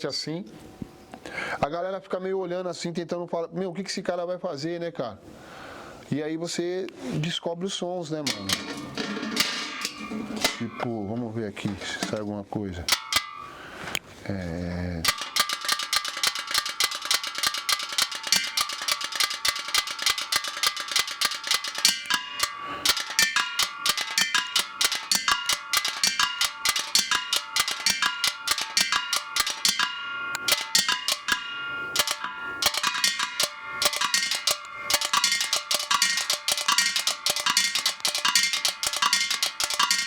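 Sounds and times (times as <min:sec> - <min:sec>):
metal percussion strikes: 0:08.3 - 0:12.2, 0:12.8 - 0:14.0, 0:15.0 - 0:40.0.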